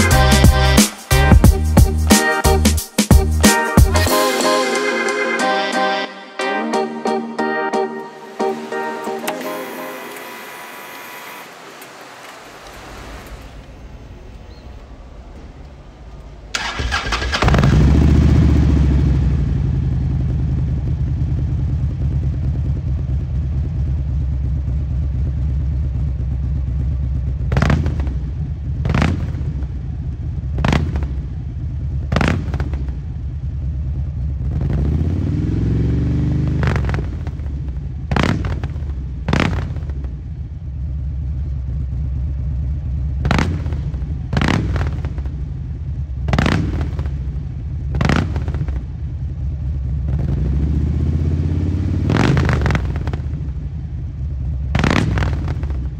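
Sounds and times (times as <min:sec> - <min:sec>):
motorcycle engine revving: 0:08.6 - 0:55.9
motorcycle engine idling: 0:13.9 - 0:55.9.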